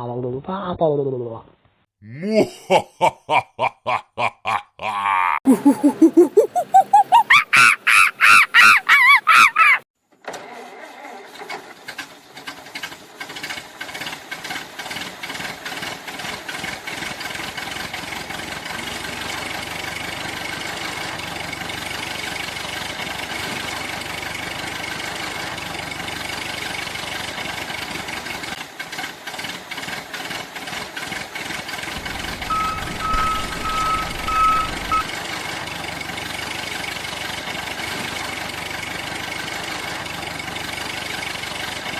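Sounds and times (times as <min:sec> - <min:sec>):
engine starting and running: 0:10.2 - 0:16.3, 0:31.7 - 0:41.9
loud warbling tone: 0:32.0 - 0:35.1
short even beeps: 0:32.0 - 0:35.1.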